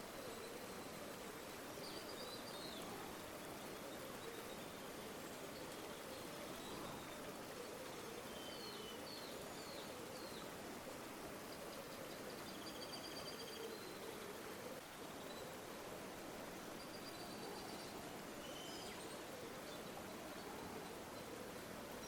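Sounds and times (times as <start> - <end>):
river water flowing: 13.1 - 22.0.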